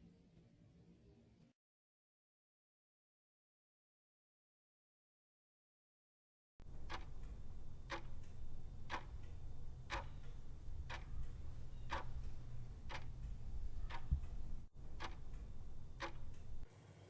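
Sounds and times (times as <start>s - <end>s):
clock ticking: 6.6s - 16.6s
low steady rumble: 6.6s - 16.6s.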